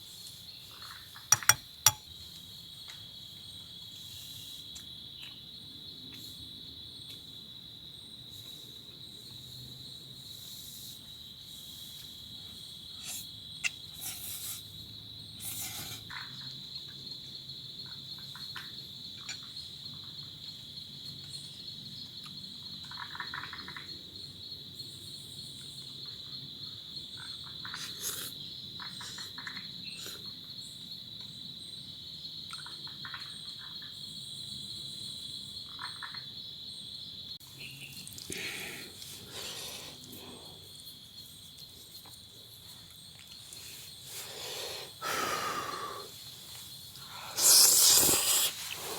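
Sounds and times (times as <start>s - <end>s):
crickets chirping: 0.0s - 48.9s
frog croaks: 22.3s - 23.9s.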